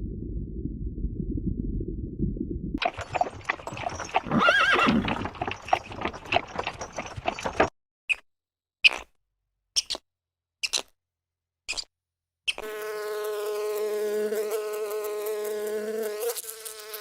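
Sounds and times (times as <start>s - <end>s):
horse whinnying: 2.8s - 7.6s
hooves clip-clopping: 2.8s - 7.7s.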